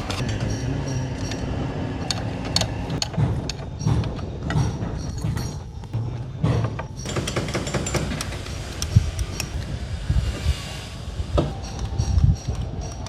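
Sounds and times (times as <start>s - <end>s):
metal clinks and knocks: 0.0s - 9.6s
low rumble: 0.0s - 13.0s.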